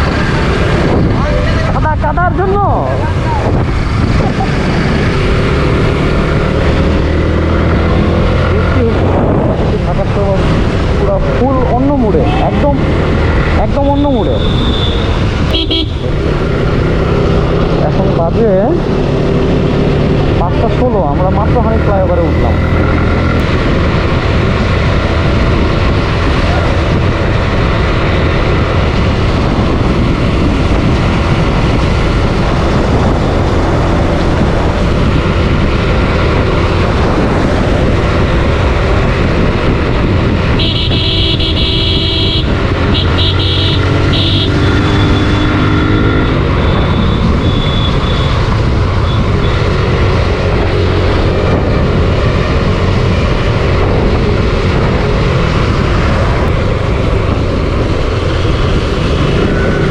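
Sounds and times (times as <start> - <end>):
motorcycle engine running: 0.0 - 59.9
wind and road noise: 0.0 - 59.9
vehicle horn blasts: 14.3 - 16.0, 40.6 - 45.5, 46.9 - 48.3.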